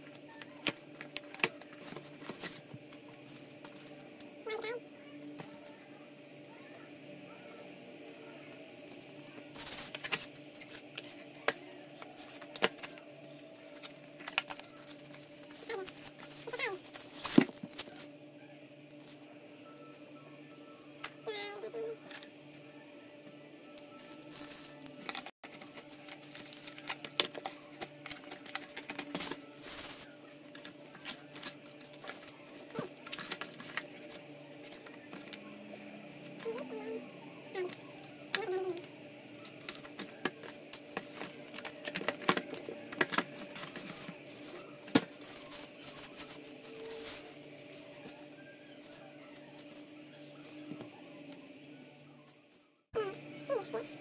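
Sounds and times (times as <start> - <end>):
packaging rustling: 24.0 - 35.5, 39.4 - 49.8.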